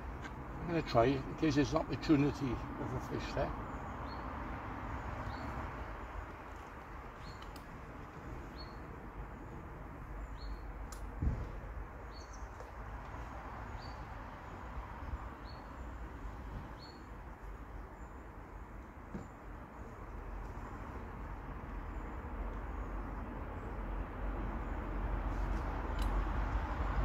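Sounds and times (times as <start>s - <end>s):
outdoor background hiss: 0.0s - 27.0s
small bird chirping: 7.2s - 7.6s.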